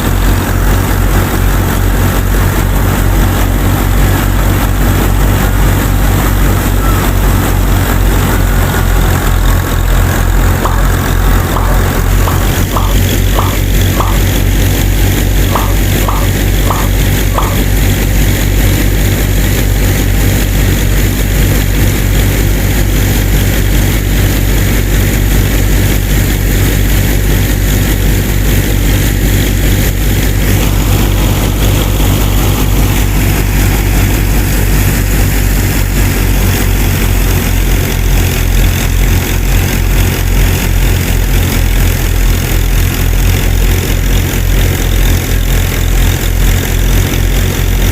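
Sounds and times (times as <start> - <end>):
rough bright grinding noise: 0.0 - 18.3
small motor humming: 0.0 - 47.9.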